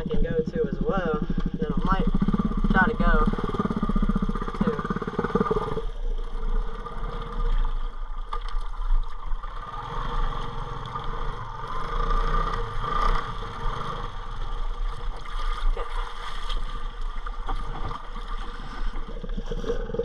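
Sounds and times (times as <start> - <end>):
motorbike engine running: 0.0 - 7.8, 9.5 - 15.0.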